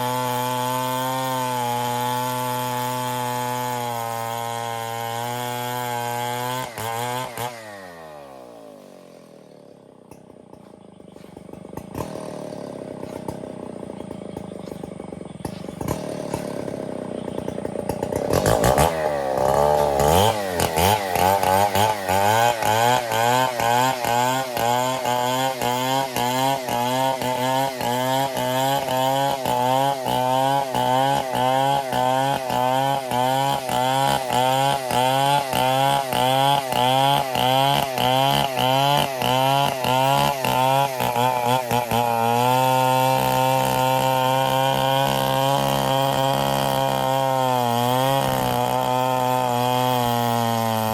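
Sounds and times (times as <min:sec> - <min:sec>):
chainsaw cutting wood: 0:00.0 - 0:50.9.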